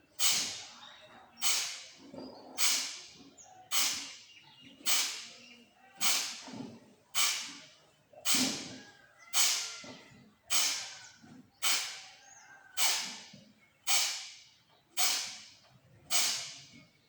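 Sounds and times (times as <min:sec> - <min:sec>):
forceful nasal exhalations: 0:10.5 - 0:10.9, 0:15.0 - 0:15.4.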